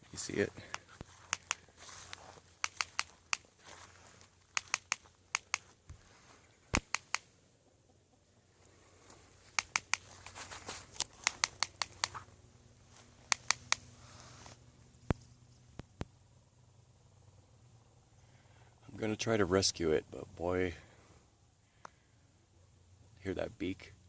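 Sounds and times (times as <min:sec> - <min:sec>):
owl beak snapping: 0:00.7 - 0:03.5, 0:04.5 - 0:06.0, 0:06.7 - 0:07.3, 0:09.5 - 0:10.3, 0:11.0 - 0:12.2, 0:13.3 - 0:13.9.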